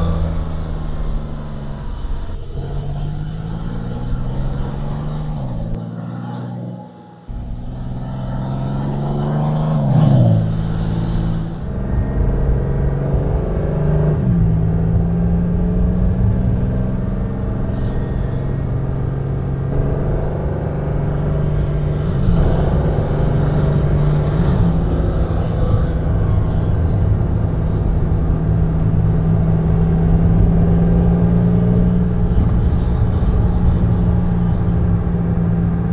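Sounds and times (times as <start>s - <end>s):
car engine running and shifting gears: 0.0s - 35.9s.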